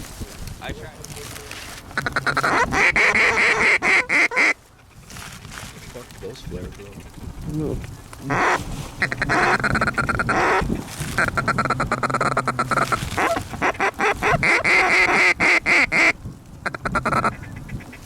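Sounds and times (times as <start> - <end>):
goose calls clucking and honking: 1.9 - 4.6, 8.2 - 18.0.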